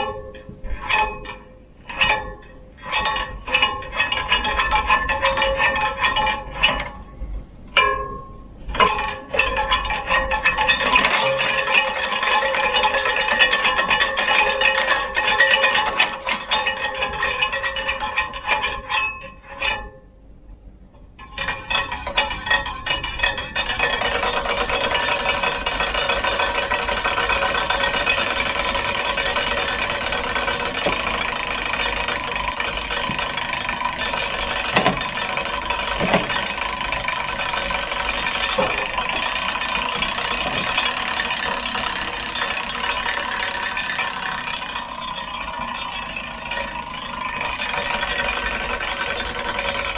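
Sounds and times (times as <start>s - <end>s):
bicycle clicks and knocks: 0.0s - 7.1s, 7.7s - 19.9s, 21.0s - 49.9s
bicycle rattling whir: 8.7s - 19.8s, 21.2s - 49.9s.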